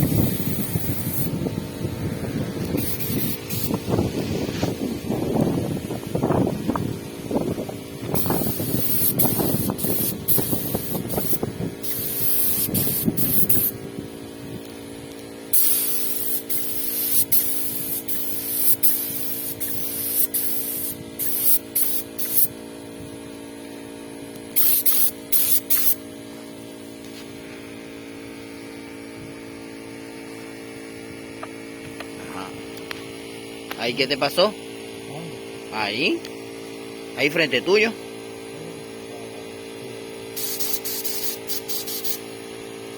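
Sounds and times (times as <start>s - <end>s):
spray gun hissing: 0.0s - 5.0s, 8.1s - 13.8s, 15.5s - 22.6s, 24.5s - 26.0s, 40.3s - 42.6s
steady hum: 0.0s - 42.9s.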